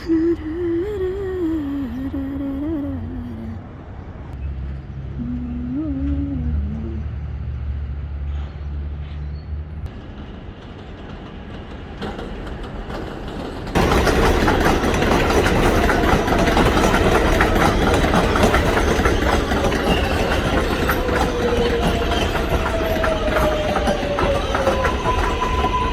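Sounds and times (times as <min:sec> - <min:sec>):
low hum: 0:00.0 - 0:08.6
subway train rushing: 0:00.0 - 0:25.9.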